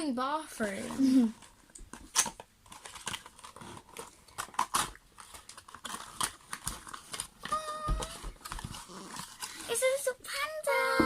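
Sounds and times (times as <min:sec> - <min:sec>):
packaging crinkling and clicking: 0:01.4 - 0:09.8.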